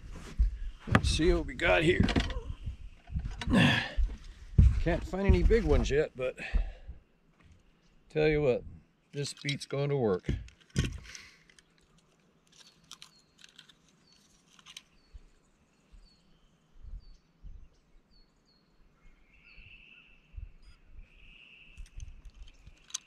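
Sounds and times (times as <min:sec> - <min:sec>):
faint birdsong chirps: 0:11.4 - 0:23.0.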